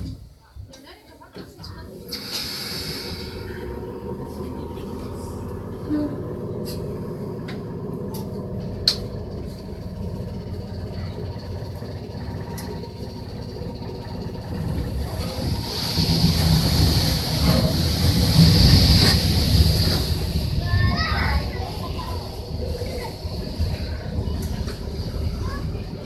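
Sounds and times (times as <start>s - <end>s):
electric train rumbling: 0.0s - 26.0s
rushing noise: 13.1s - 26.0s.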